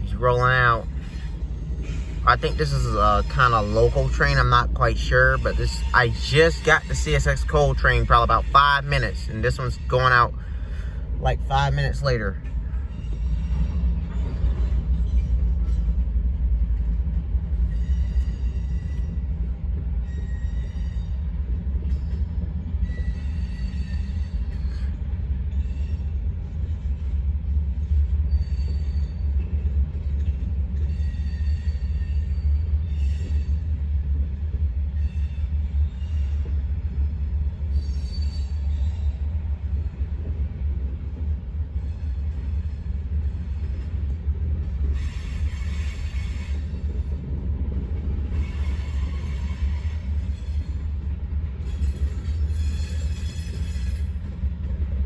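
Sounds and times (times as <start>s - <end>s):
freight train rumbling past: 0.0s - 55.0s
high-pitched wheel squeals: 1.9s - 9.2s, 51.6s - 54.2s.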